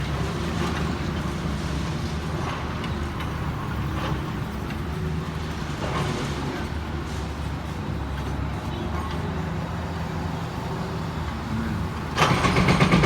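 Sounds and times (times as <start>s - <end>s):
excavator diesel engine droning: 10.5s - 13.0s.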